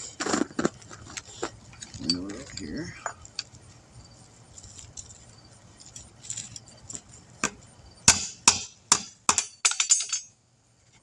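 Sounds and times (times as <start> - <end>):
small metal parts clinking: 9.6 - 10.4.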